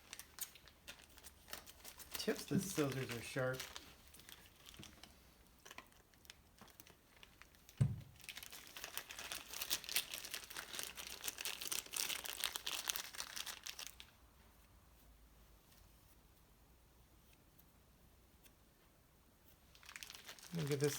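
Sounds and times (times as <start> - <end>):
packaging crinkling and tearing: 0.0 - 14.1, 19.7 - 20.9
dull knock: 7.8 - 8.2.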